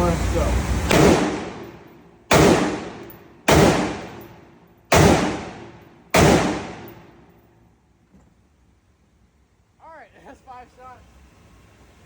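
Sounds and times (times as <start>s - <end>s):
gunshots with echoing decay: 0.9s - 7.3s.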